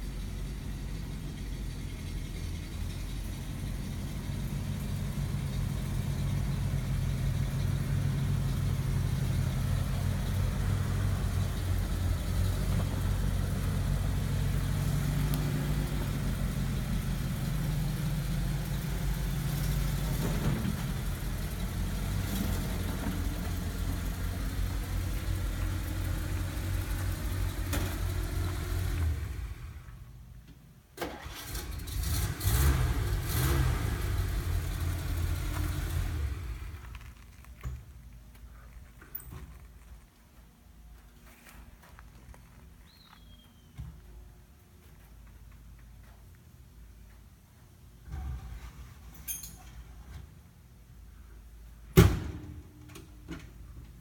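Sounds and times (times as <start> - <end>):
truck engine running: 0.0 - 30.3, 31.2 - 43.4.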